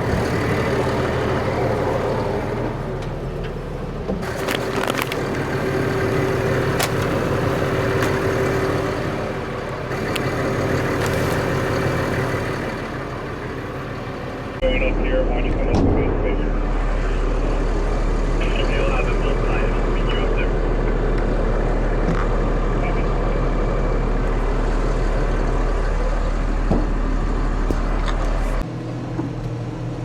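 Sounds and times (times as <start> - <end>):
diesel engine idling: 0.0 - 30.0
sharp knocks and clanks: 26.6 - 27.0.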